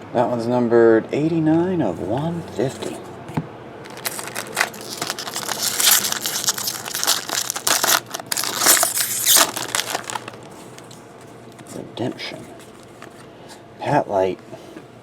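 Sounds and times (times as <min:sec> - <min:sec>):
plastic packaging crinkling: 0:03.8 - 0:11.8.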